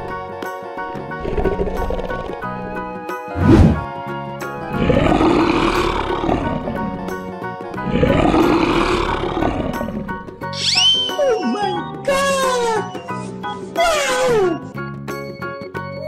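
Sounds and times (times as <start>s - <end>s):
background music: 0.0s - 16.0s
lion roaring: 1.0s - 3.9s, 4.6s - 10.4s
falling whistle-like glides: 10.6s - 11.8s.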